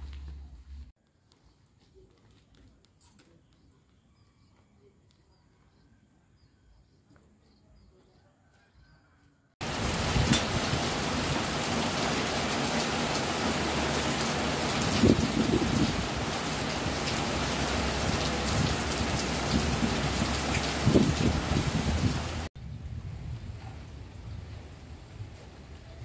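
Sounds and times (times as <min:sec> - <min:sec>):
heavy rain falling: 0:09.6 - 0:22.5.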